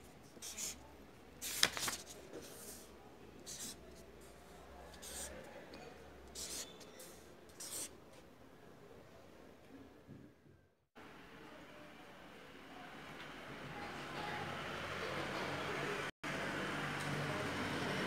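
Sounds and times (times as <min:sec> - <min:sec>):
pen scratching on paper: 0:00.4 - 0:00.8, 0:01.4 - 0:02.8, 0:03.4 - 0:03.8, 0:04.9 - 0:05.4, 0:06.3 - 0:06.8, 0:07.5 - 0:07.9.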